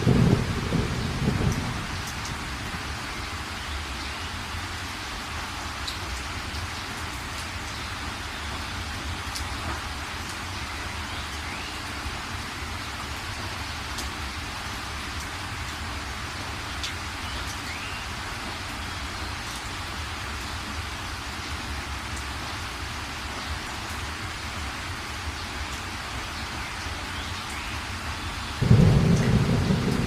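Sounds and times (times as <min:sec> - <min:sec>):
heavy rain hissing: 0:00.0 - 0:30.0.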